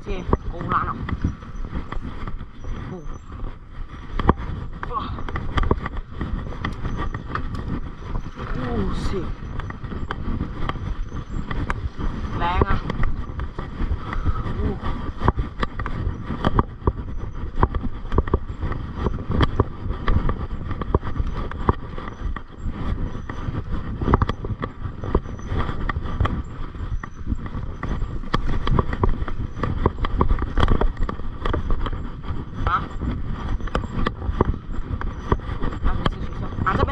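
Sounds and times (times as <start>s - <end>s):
bike rumbling over rough trail: 0.0s - 36.9s.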